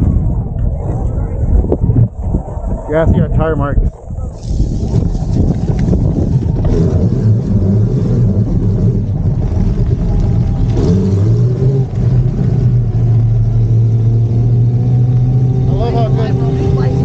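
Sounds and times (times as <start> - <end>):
tyres rumbling on dirt: 4.4 - 17.0.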